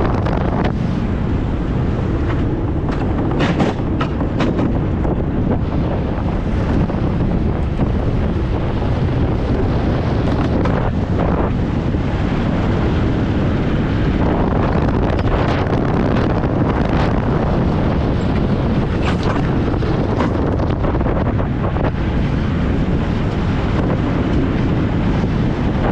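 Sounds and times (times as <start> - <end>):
tyre and road rumble: 0.0 - 25.9
wind buffeting microphone: 0.0 - 25.9
chassis knocks and rattles: 2.2 - 5.2.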